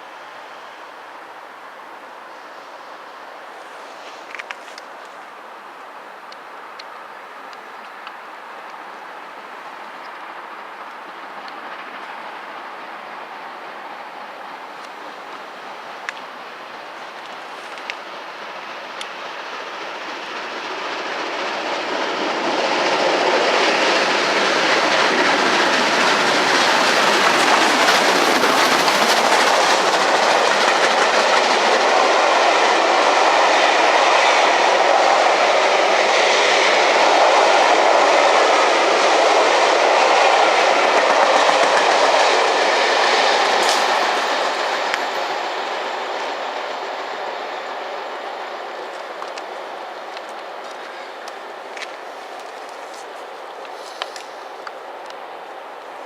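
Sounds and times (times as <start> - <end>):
train passing: 0.0 - 56.0.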